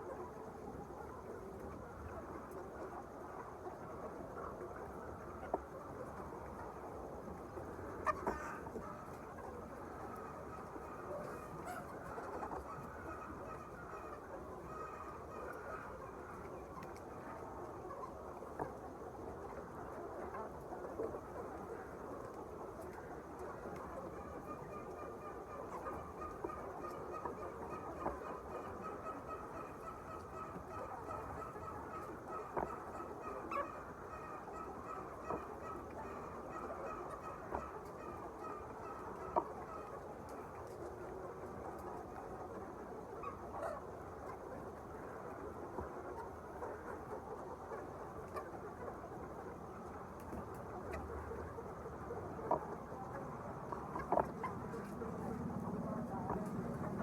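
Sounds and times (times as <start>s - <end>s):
flock of poultry calling: 0.0s - 57.0s
chickens chattering: 7.5s - 18.6s, 22.8s - 57.0s.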